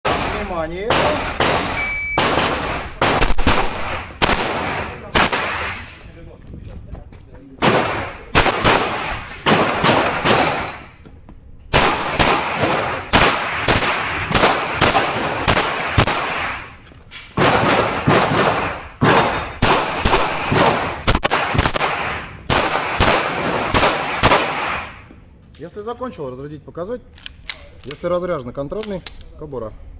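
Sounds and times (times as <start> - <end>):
pistol shots with echo: 0.0 - 5.9, 7.6 - 11.0, 11.7 - 16.8, 17.4 - 25.0.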